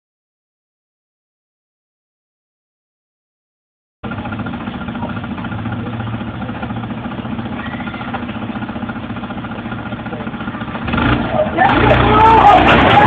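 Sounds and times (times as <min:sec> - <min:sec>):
muffled car engine hum: 0:04.0 - 0:13.0.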